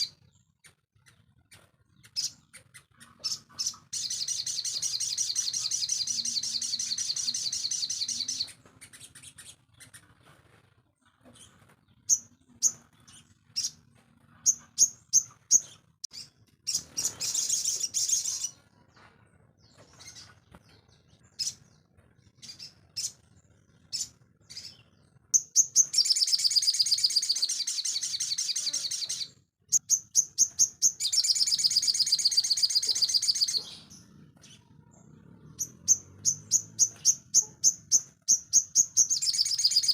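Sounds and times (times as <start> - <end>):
sharp bird chirps: 2.0 - 10.0, 23.8 - 39.9
songbird trilling: 25.4 - 34.0, 35.5 - 39.9.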